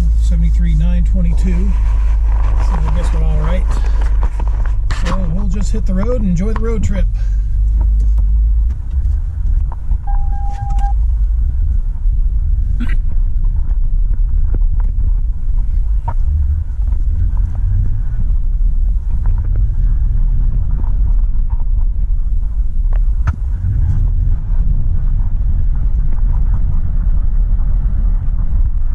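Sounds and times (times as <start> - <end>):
car engine: 0.0 - 28.9
road rumble inside car: 0.0 - 28.9
short beep: 10.1 - 11.0.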